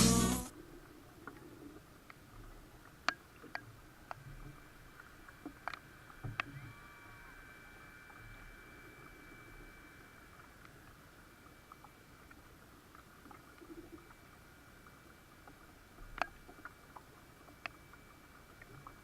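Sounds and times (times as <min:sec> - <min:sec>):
faint high-pitched whine: 0:00.0 - 0:19.0
sharp clicks and light knocks: 0:16.0 - 0:17.8.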